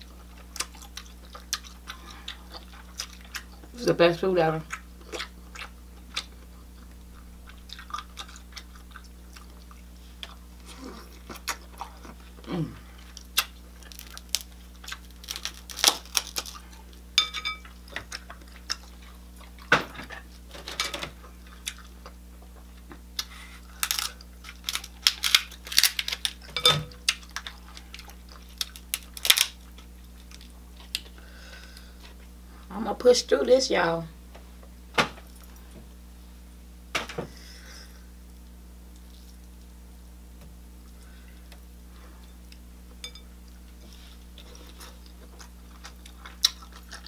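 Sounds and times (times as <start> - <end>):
chewing and lip-smacking: 0.0 - 3.8, 4.6 - 17.0, 17.6 - 20.4, 21.4 - 26.4, 27.0 - 31.2, 44.3 - 47.0
faint steady hum: 0.0 - 47.0
shell cracking and crunching: 13.1 - 16.8, 23.2 - 31.2.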